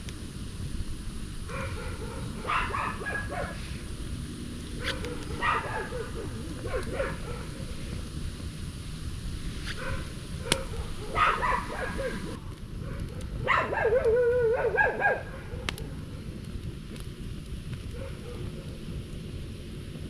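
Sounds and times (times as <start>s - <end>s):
rain hiss: 0.0s - 20.0s
animal high wavering calls: 4.8s - 8.0s, 10.5s - 12.4s, 13.5s - 15.6s.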